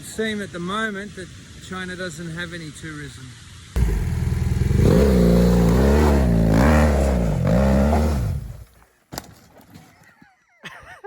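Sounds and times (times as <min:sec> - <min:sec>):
motorbike engine revving: 0:03.8 - 0:08.6.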